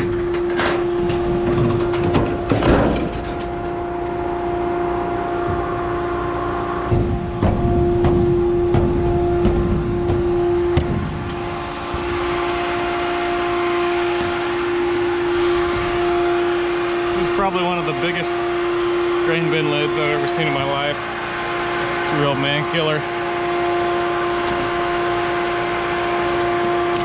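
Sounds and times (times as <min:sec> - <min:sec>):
knocks and clanks: 0:00.0 - 0:04.2, 0:06.9 - 0:12.9, 0:23.8 - 0:24.9
machinery hum: 0:00.0 - 0:27.0.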